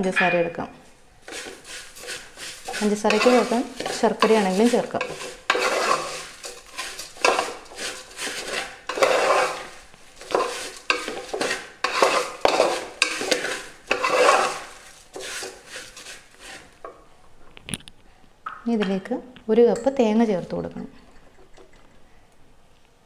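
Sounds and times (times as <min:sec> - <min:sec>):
spoon stirring and scraping pan: 0:00.0 - 0:17.2
frying sizzle: 0:01.2 - 0:16.8.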